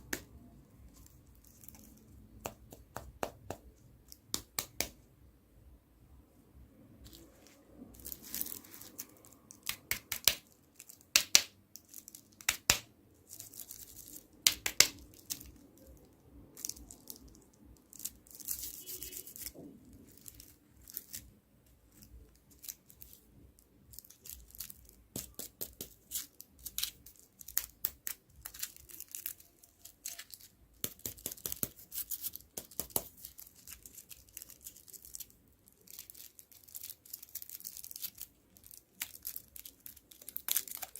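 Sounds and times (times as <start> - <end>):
wrappers tearing and crinkling: 7.1 - 11.2, 11.8 - 23.3, 23.9 - 40.9.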